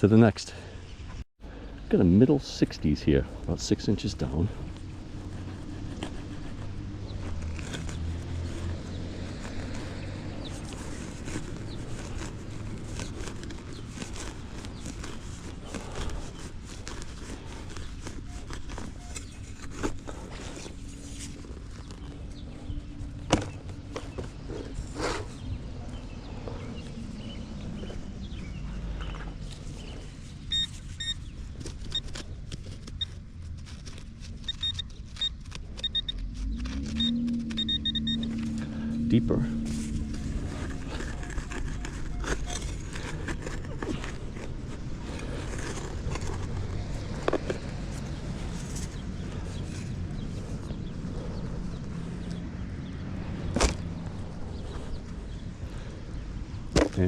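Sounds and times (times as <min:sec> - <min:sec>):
hand digger crunching soil: 0:04.0 - 0:25.4, 0:27.2 - 0:52.8
metal detector beeps: 0:30.5 - 0:31.3, 0:34.4 - 0:36.2, 0:36.9 - 0:38.6, 0:41.1 - 0:42.7.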